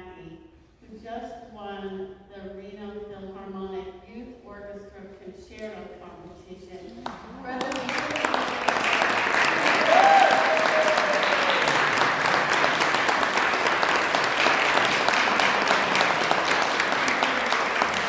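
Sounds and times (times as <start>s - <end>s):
audience applauding: 7.6s - 18.0s.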